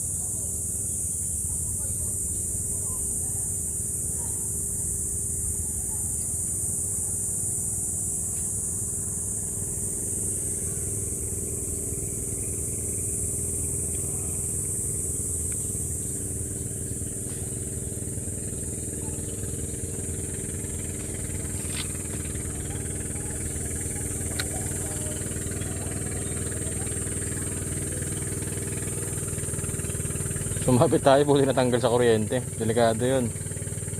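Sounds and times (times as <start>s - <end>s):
small engine running: 0.0s - 33.9s.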